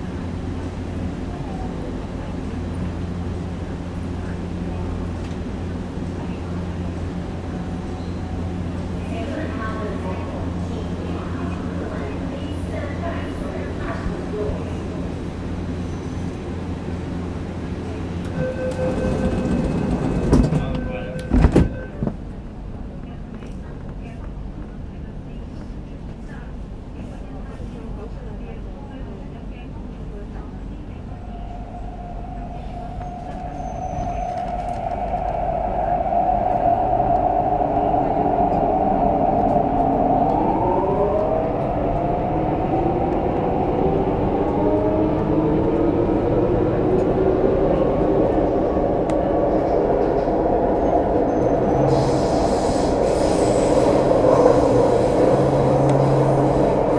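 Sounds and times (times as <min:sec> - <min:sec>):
train car rumble: 0:00.0 - 0:56.9.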